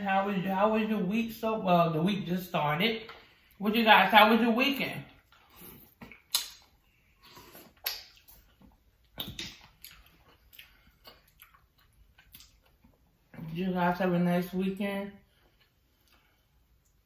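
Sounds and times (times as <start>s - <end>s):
wet chewing and mouth smacks: 5.2s - 13.4s, 15.4s - 17.0s.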